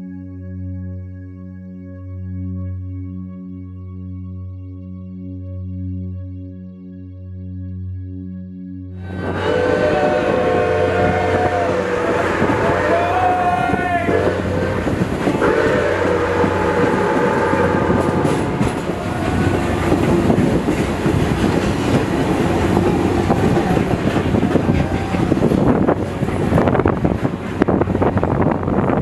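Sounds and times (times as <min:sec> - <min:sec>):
steam train whistle: 0:09.0 - 0:26.4
train wheels clattering over rails: 0:09.3 - 0:29.0.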